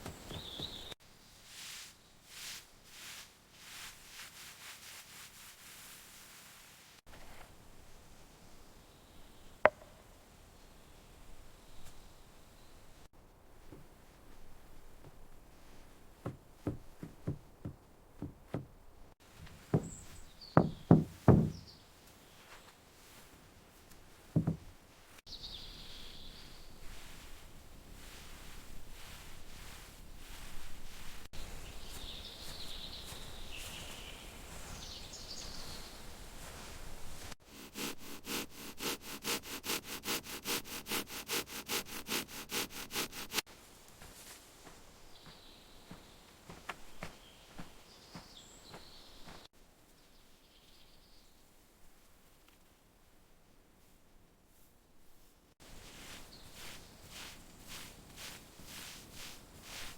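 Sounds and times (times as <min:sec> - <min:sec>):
hand tool knocking: 0:20.6 - 0:21.6
hand tool rasping: 0:37.4 - 0:43.4.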